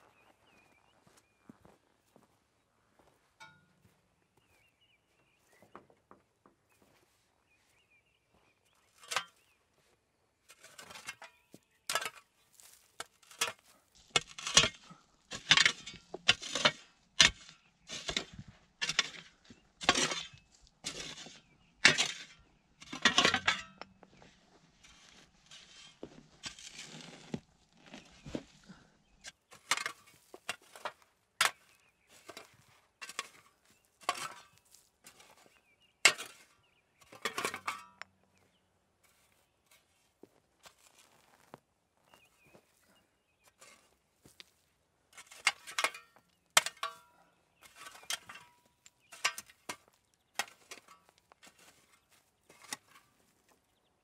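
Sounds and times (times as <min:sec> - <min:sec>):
sharp clinks and scrapes: 0:10.5 - 0:24.1, 0:24.8 - 0:27.4, 0:29.2 - 0:38.1, 0:45.1 - 0:53.3.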